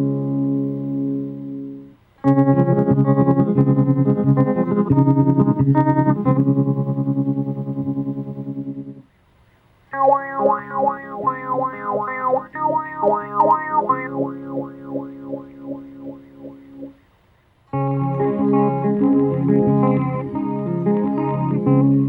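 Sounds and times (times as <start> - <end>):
picked electric guitar notes: 0.0 - 9.0, 10.0 - 17.0, 17.7 - 22.0
pulsing electric guitar chord: 10.0 - 17.0, 17.8 - 22.0.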